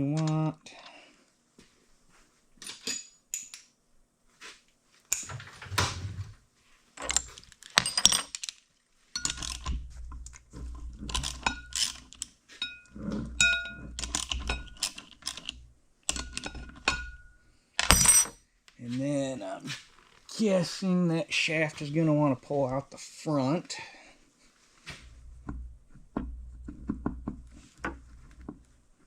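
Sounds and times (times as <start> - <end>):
metal tools clinking: 2.6 - 3.6, 7.0 - 18.4
rumbling handling noise: 5.1 - 8.5, 9.2 - 18.4, 24.8 - 29.0
metallic ring: 9.2 - 9.7, 11.2 - 14.9, 16.1 - 18.4.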